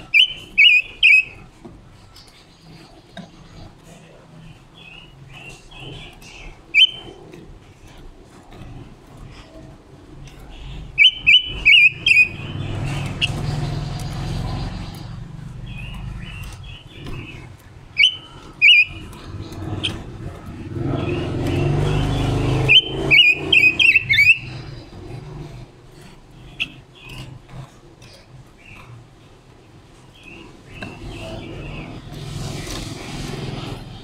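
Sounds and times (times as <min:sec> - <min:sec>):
bird call notes: 0:00.0 - 0:01.4, 0:06.7 - 0:07.2, 0:10.6 - 0:15.1, 0:15.7 - 0:20.0, 0:20.9 - 0:24.8
broad rushing noise: 0:30.7 - 0:34.0.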